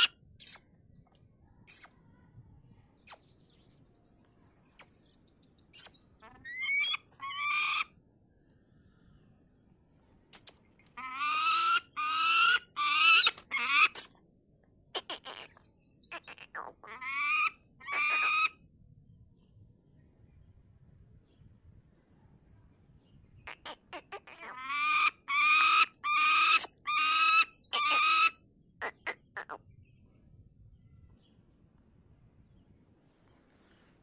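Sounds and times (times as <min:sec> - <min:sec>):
bird chirps: 0:01.7 - 0:02.2, 0:02.8 - 0:07.8, 0:13.1 - 0:16.9, 0:25.6 - 0:30.1.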